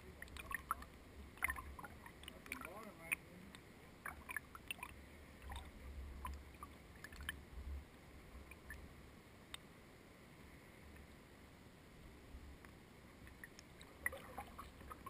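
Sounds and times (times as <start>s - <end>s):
water drips and splashes: 0.0s - 7.5s, 8.4s - 8.9s, 13.2s - 15.0s
quiet hiss: 0.0s - 15.0s.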